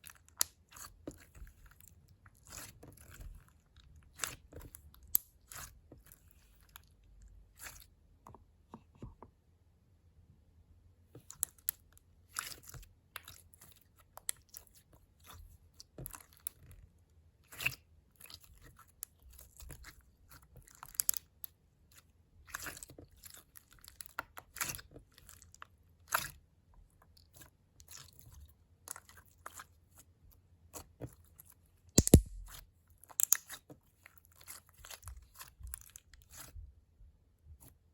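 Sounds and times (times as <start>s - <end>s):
slime crackling and popping: 32.0s - 32.5s
slime squished by hand: 32.0s - 32.6s.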